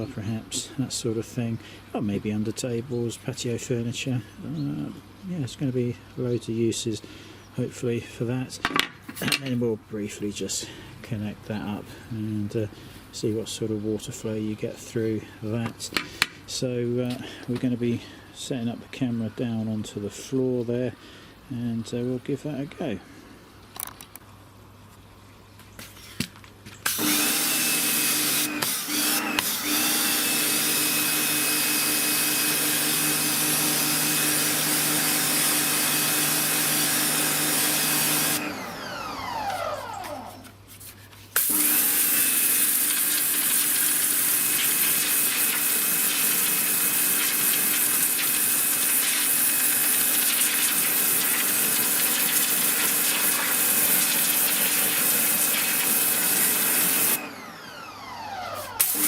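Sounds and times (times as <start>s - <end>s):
pressure washer motor and pump: 26.8s - 40.6s, 41.3s - 59.0s
spray hissing: 42.6s - 57.2s.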